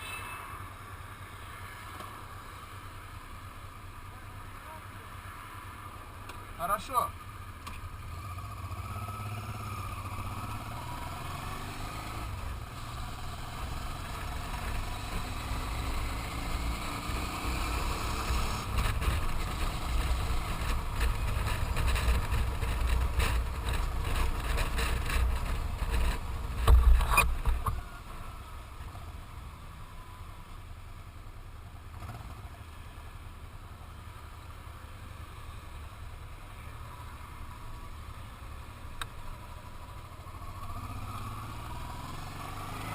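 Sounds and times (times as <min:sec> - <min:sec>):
motorcycle engine running: 0:07.4 - 0:28.1.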